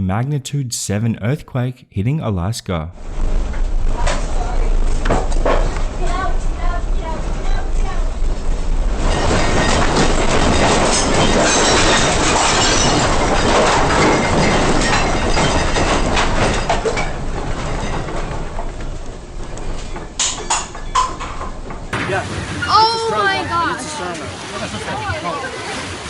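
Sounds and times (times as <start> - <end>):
deep earthquake rumble: 2.9 - 22.6.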